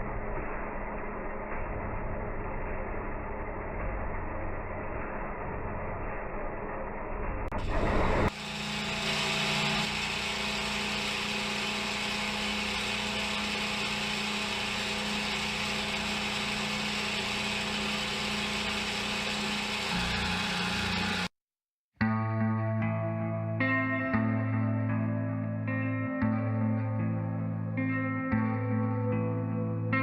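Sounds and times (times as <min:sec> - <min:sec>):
milling machine spindle humming: 0:07.6 - 0:21.3.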